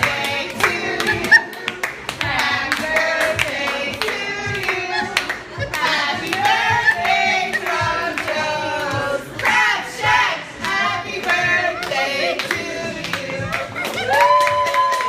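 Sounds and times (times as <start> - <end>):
hands clapping: 0.0 - 7.1, 11.8 - 15.0
group of voices singing: 0.0 - 14.2.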